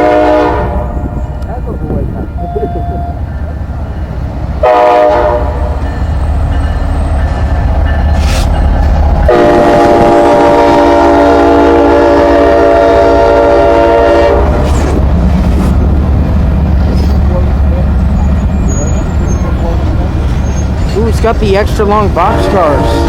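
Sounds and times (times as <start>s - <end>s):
locomotive air horn blasts: 0.0s - 1.1s, 4.6s - 5.9s, 9.3s - 14.6s, 22.2s - 23.0s
freight train rumbling past: 0.0s - 23.0s.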